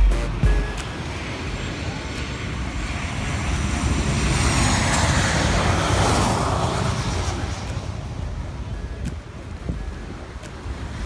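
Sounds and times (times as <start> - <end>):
high whine falling in pitch: 0.0 - 2.0
jet airliner passing overhead: 0.0 - 11.0.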